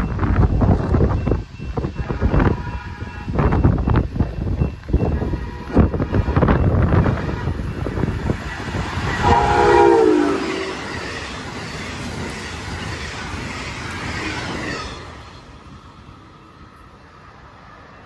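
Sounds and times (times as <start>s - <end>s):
train rumble: 0.0s - 18.0s
train horn chord: 9.2s - 10.9s.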